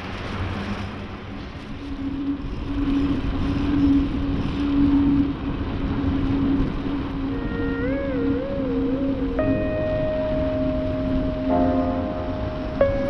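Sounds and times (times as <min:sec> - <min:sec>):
wavering electronic tune: 0:08.1 - 0:13.0.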